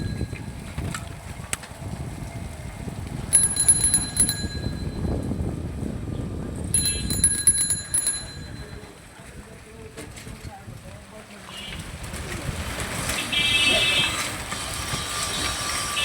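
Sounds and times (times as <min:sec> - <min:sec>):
bicycle bell trills: 0:00.0 - 0:00.7, 0:03.3 - 0:05.4, 0:06.7 - 0:09.0
low riding rumble: 0:00.0 - 0:09.8.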